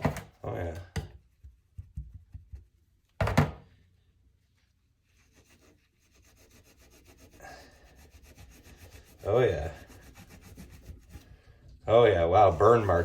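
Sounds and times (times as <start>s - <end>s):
objects knocking on work surface: 3.2s - 3.6s
knife scrubbing: 5.1s - 11.5s, 12.2s - 13.0s.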